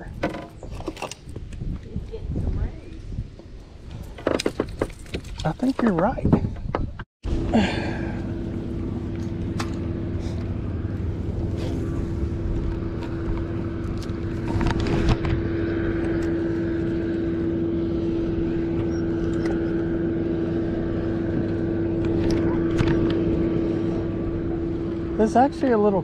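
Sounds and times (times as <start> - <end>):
boat motor humming: 6.0 - 26.0.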